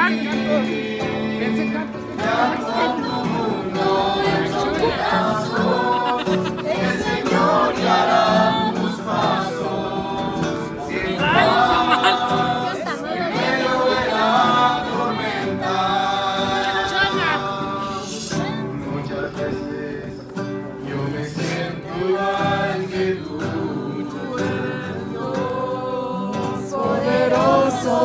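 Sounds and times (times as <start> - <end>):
group singing worship song: 0.0 - 28.0.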